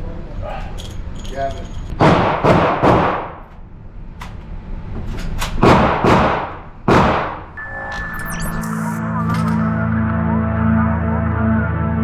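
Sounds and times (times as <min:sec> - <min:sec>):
pistol shots: 0:02.0 - 0:03.4, 0:05.6 - 0:07.4
music: 0:07.6 - 0:12.0.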